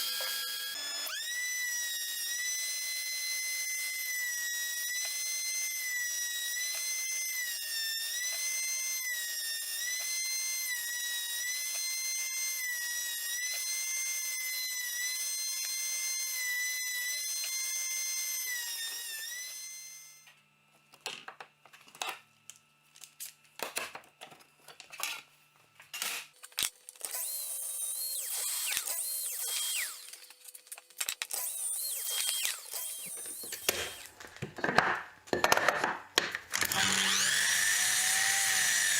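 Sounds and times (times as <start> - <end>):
power tool whining: 0.0 - 20.3, 26.6 - 34.2, 36.5 - 38.9
hissing tool: 31.4 - 34.1.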